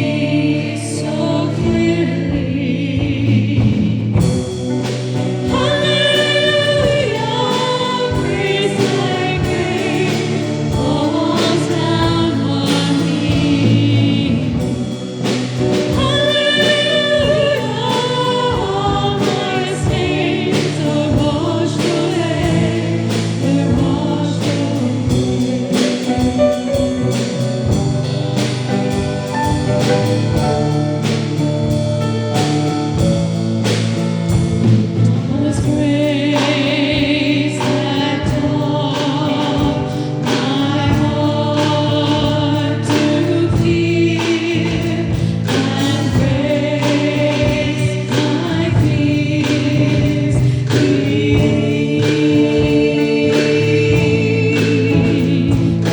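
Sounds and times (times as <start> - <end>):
choir singing a worship song: 0.0 - 55.9
instrumental accompaniment: 0.0 - 55.9
steady beat: 3.1 - 37.7.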